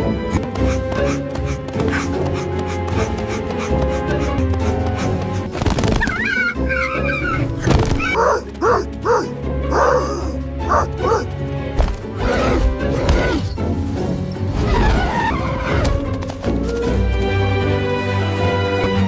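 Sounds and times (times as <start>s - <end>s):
background music: 0.0s - 19.0s
dog barking and yipping: 1.1s - 11.3s.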